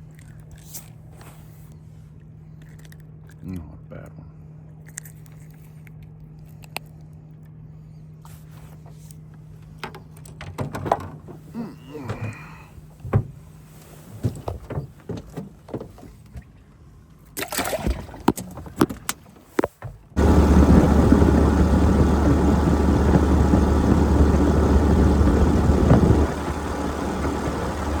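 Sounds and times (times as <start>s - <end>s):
boat motor running: 20.2s - 28.0s
gear knocking and clicking: 20.2s - 28.0s.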